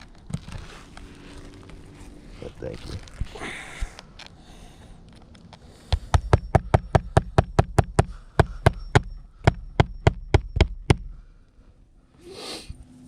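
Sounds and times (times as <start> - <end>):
hammer striking nails: 5.9 - 11.2.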